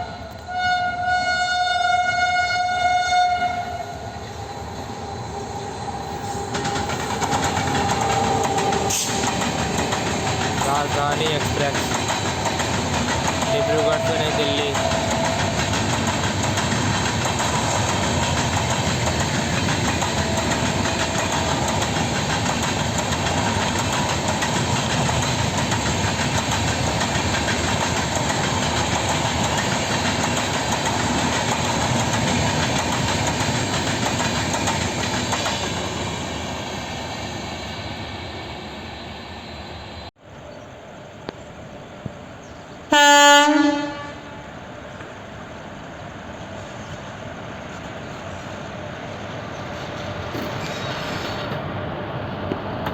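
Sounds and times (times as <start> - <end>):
train horn blast: 0.0 - 4.2, 13.4 - 15.7, 42.9 - 44.5
train wheels rumbling: 0.0 - 40.1, 40.8 - 52.9.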